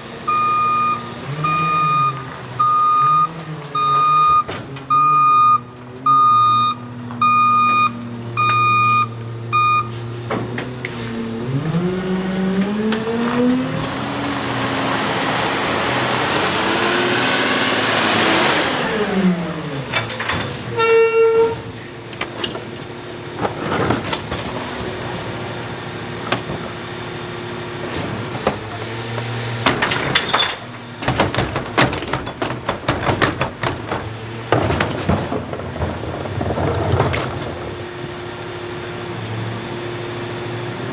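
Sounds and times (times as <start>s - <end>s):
truck engine revving: 0.0s - 20.8s, 21.6s - 40.9s
reverse alarm beeping: 0.3s - 10.0s
knocks and clatter: 21.5s - 38.2s.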